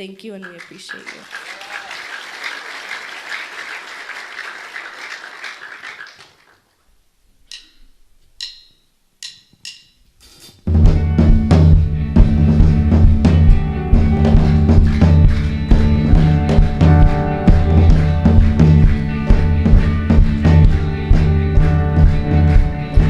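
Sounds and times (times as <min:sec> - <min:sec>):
audience applause: 0:00.3 - 0:06.6, 0:14.3 - 0:23.0
drumsticks clicking: 0:07.5 - 0:10.5
live band with drum kit: 0:10.2 - 0:23.0.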